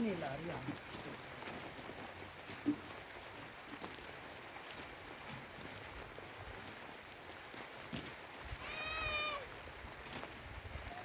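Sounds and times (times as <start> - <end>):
faint background noise: 0.0 - 11.0
high-pitched animal cry: 8.6 - 9.5.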